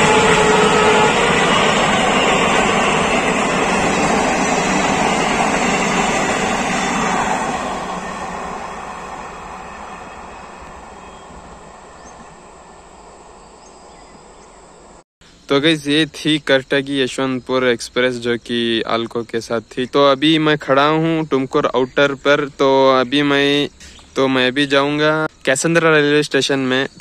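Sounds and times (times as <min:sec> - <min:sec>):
train wheels rushing on rails: 0:00.0 - 0:15.0.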